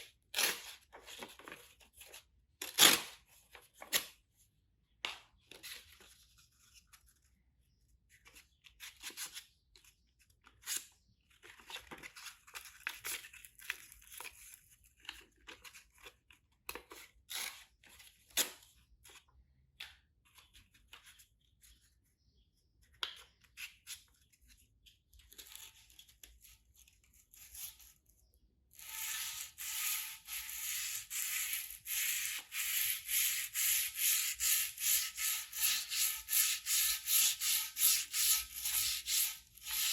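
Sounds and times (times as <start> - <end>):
hand sanding metal: 29.0 - 39.9.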